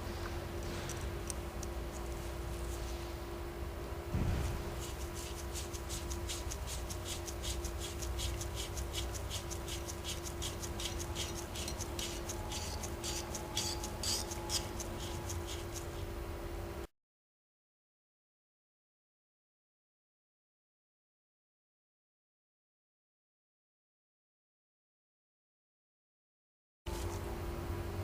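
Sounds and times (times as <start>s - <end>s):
steady low hum: 0.0s - 16.9s
quick scrubbing strokes: 4.5s - 16.0s.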